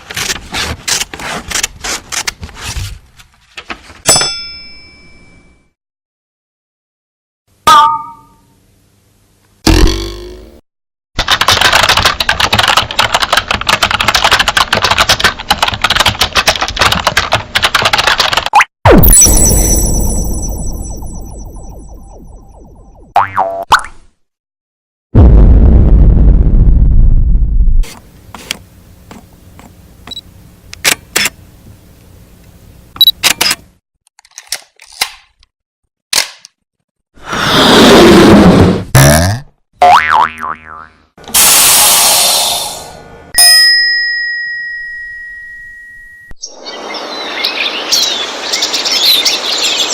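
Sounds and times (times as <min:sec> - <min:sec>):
rapid clatter of clicks: 0:11.2 - 0:18.5.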